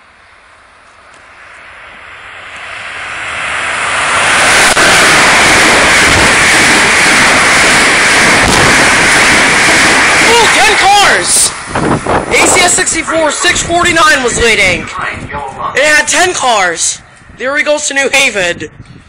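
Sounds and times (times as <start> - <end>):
train passing at speed: 0.0 - 18.5.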